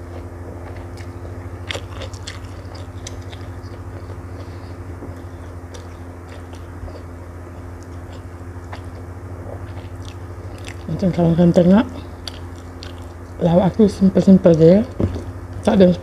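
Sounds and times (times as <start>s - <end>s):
close chewing with mouth clicks: 0.0s - 10.9s, 12.2s - 13.4s
steady low hum: 0.0s - 16.0s.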